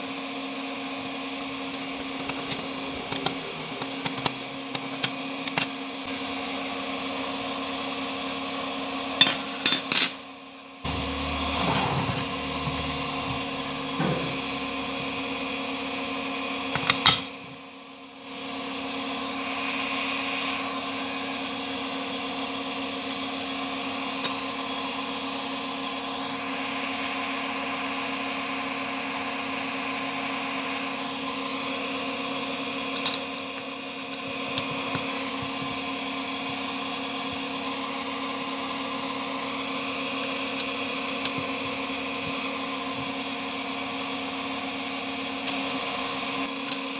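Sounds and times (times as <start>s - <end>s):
machine tool motor humming: 10.8s - 15.5s.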